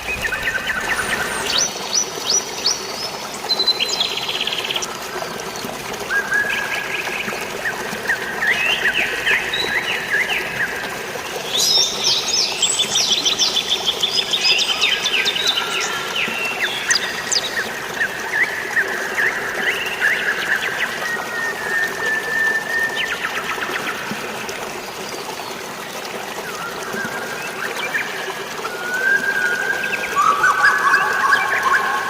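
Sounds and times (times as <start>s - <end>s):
water washing: 0.0s - 4.0s
birds chirping and trilling: 0.0s - 24.0s, 26.8s - 32.0s.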